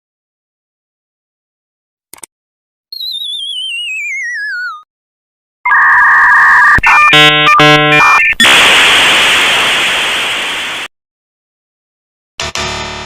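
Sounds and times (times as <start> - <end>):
click: 2.1 - 2.3
two-pitch electronic tone: 5.7 - 8.3.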